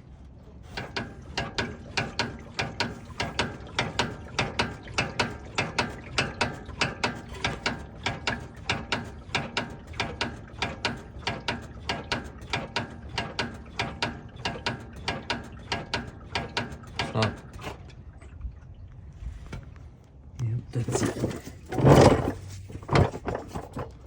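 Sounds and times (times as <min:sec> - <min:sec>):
car front end clunking: 0:20.8 - 0:24.0.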